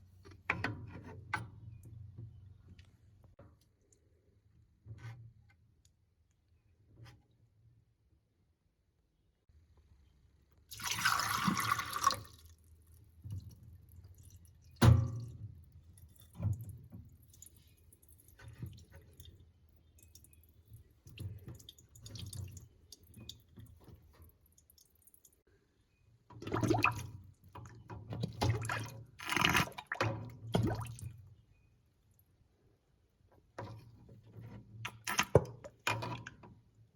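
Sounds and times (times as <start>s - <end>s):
water dripping and gurgling: 10.7s - 25.4s, 26.4s - 31.2s.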